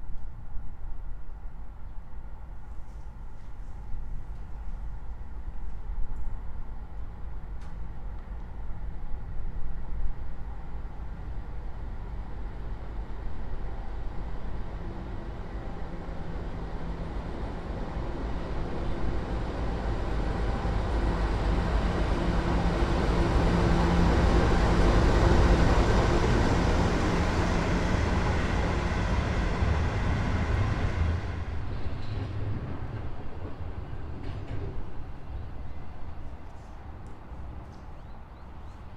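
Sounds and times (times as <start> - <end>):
diesel locomotive engine drone: 0.0 - 38.9
train wheels on rails: 14.7 - 38.3.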